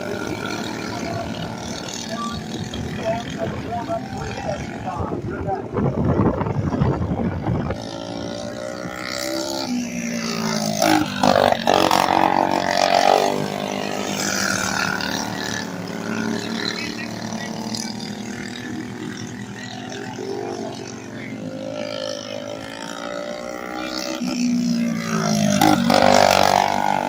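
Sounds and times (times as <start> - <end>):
small racing engines revving: 0.0 - 27.0.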